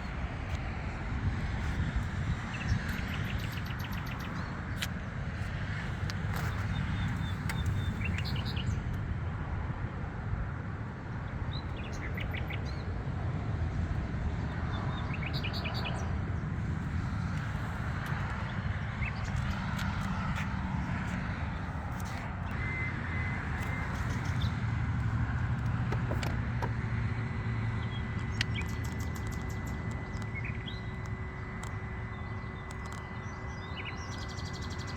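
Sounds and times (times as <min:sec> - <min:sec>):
birds chirping: 0:02.2 - 0:08.8, 0:16.8 - 0:34.9
steady low rumble: 0:16.0 - 0:34.9.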